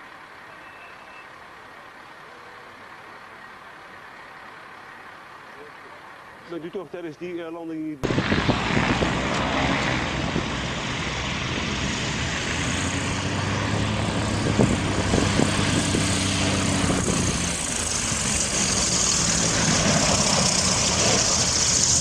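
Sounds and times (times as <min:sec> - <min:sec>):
propeller aircraft engine: 0:08.0 - 0:22.0
rushing wind-like noise: 0:08.0 - 0:22.0.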